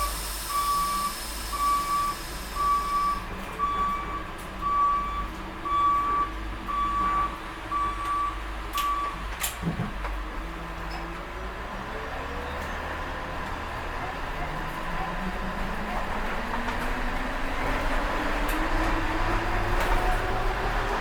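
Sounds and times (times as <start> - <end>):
reversing alarm beeping: 0.0 - 9.2
bus engine running: 0.0 - 21.0.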